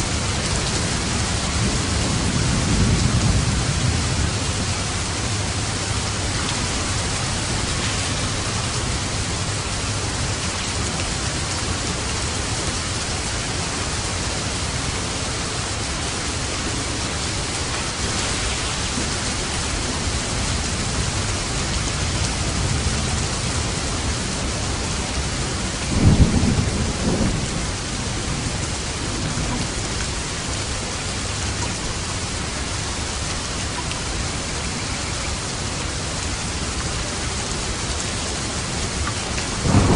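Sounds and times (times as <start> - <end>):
low rumble of thunder: 0.0 - 31.6, 36.8 - 39.9
heavy rain falling: 0.0 - 39.9.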